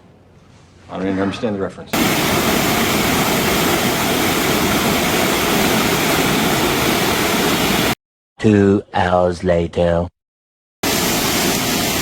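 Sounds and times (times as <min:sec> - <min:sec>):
waterfall roaring: 0:02.0 - 0:08.0, 0:10.8 - 0:12.0.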